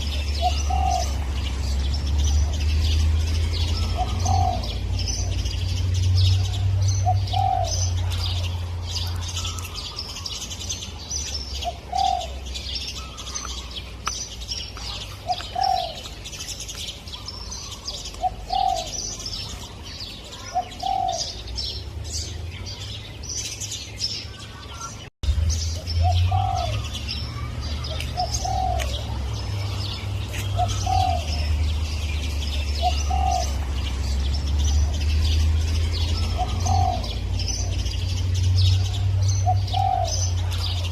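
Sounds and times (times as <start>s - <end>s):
dove cooing: 0.0s - 1.8s, 3.6s - 5.5s, 6.3s - 10.4s, 11.6s - 13.7s, 14.8s - 16.2s, 17.2s - 19.7s, 20.3s - 21.5s, 26.0s - 31.9s, 32.5s - 34.2s, 34.8s - 38.0s, 38.7s - 40.9s
small birds chirping: 0.0s - 40.9s.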